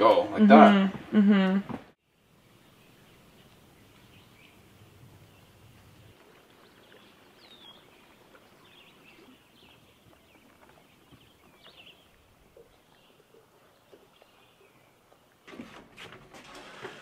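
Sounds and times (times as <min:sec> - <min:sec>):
small birds chirping: 0:02.0 - 0:15.4.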